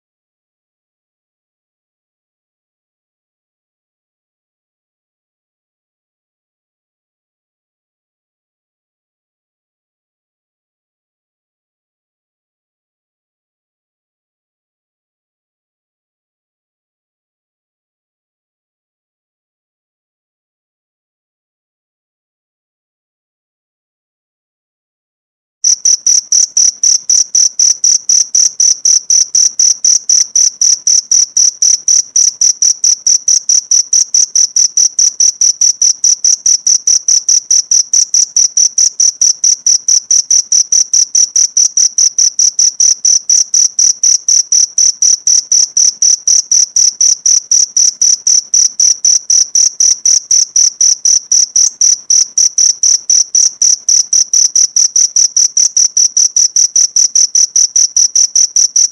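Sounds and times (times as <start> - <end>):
cricket chirping: 25.6 - 58.9.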